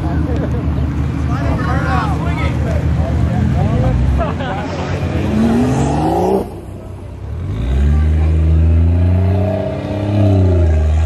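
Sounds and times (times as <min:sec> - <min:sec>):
engine revving: 0:03.3 - 0:11.0.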